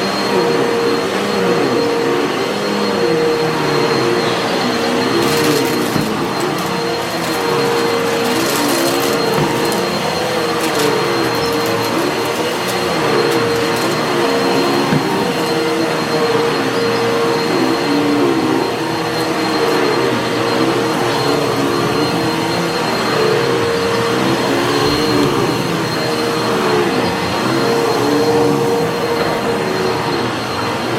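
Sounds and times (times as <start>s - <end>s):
vacuum cleaner on carpet: 0.0s - 30.9s
grit crunching in vacuum: 4.8s - 16.6s.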